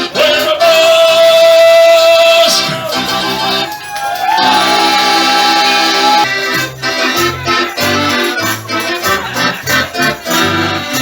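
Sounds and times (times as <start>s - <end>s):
accordion playing: 0.0s - 11.0s.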